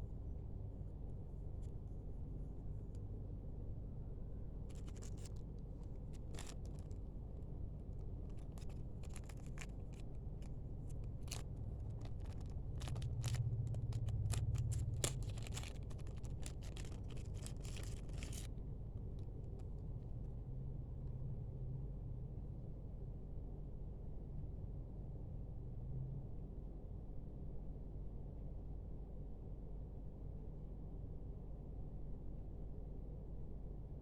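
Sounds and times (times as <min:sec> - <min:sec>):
steady low hum: 0:00.0 - 0:34.0
clicks and rustles of handled objects: 0:04.7 - 0:20.2.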